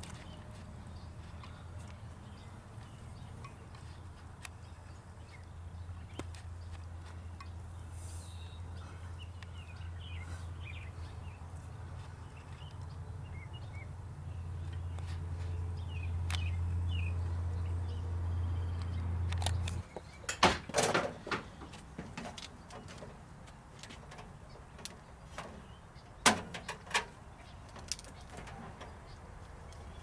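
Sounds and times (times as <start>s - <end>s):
faint bird chirps: 7.8s - 11.2s.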